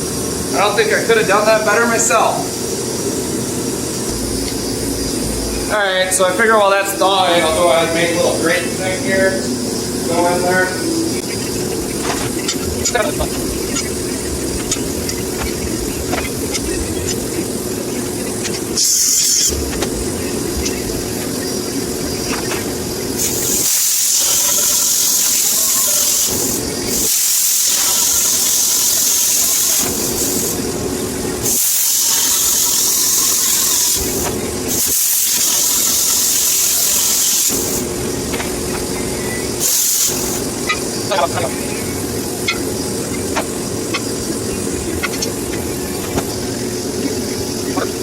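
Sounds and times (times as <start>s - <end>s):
electric arc hissing: 0.0s - 47.8s
low hum: 2.4s - 23.6s.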